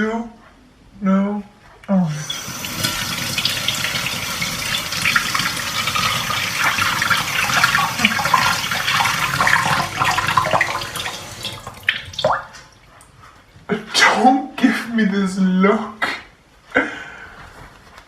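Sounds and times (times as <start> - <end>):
tap water splashing into sink: 2.3 - 12.7.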